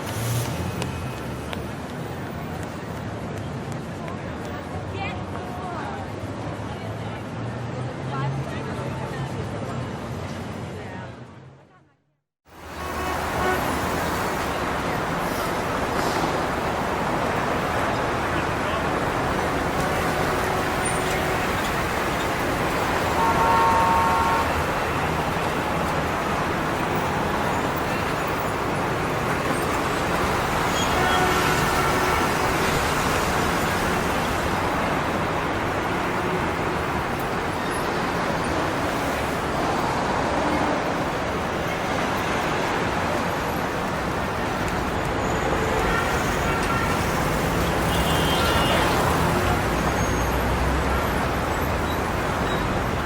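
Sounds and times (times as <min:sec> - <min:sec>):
traffic noise: 0:00.0 - 0:53.0
vehicle horn: 0:12.7 - 0:14.1, 0:19.2 - 0:21.7, 0:23.1 - 0:25.0, 0:30.7 - 0:32.6, 0:45.6 - 0:49.2.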